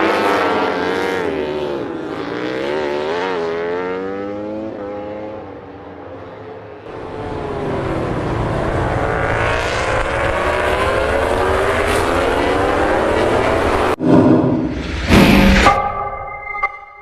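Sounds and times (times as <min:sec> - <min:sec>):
racing motorcycle engines revving: 0:00.0 - 0:14.0.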